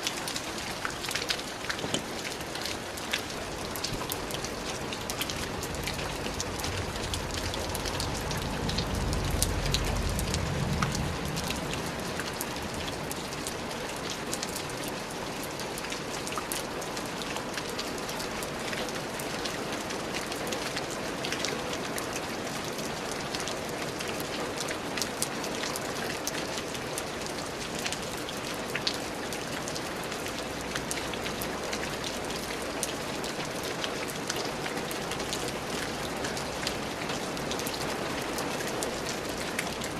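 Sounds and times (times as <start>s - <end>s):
steady rain falling: 0.0s - 39.9s
low thunder rumble: 5.4s - 13.4s.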